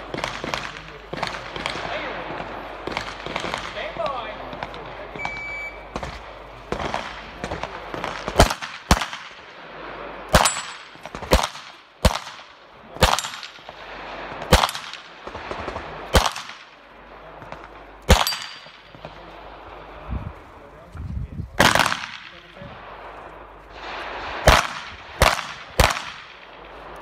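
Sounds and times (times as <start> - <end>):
handgun shots with echo: 10.3 - 12.4, 18.1 - 18.9, 24.5 - 26.4.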